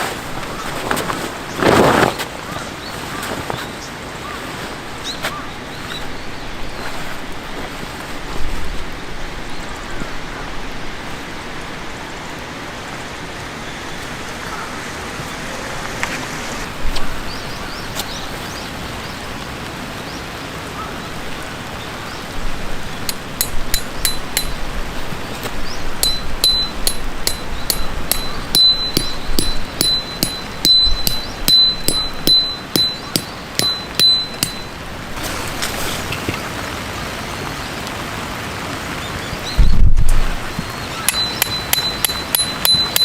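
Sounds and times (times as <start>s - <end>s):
steady rushing noise: 0.0s - 19.7s
sharp ringing clinks: 26.0s - 34.8s, 41.1s - 43.0s.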